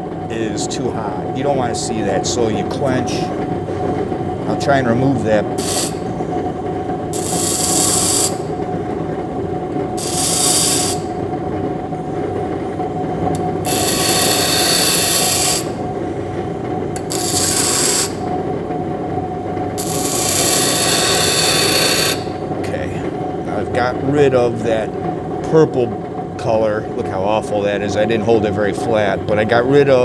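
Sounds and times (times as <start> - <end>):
grinding wheel motor hum: 0.0 - 30.0
steel grinding hiss: 5.5 - 6.1, 7.2 - 8.5, 10.0 - 11.2, 13.4 - 15.8, 17.0 - 18.2, 19.8 - 22.4.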